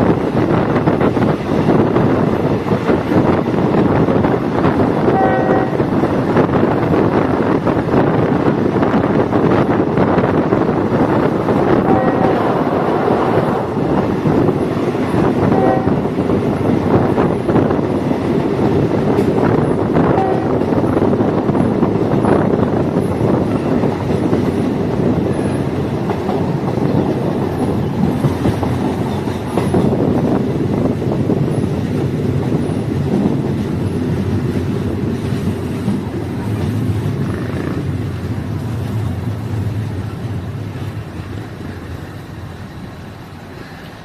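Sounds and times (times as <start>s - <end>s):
train rumbling along track: 0.0s - 44.0s
wheels clicking over rail joints: 13.5s - 44.0s.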